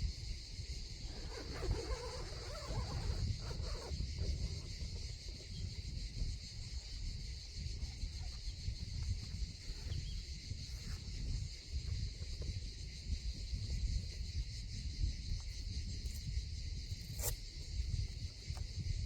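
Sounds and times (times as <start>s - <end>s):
insects chirping: 0.0s - 19.0s
wind rumble on microphone: 0.0s - 19.0s.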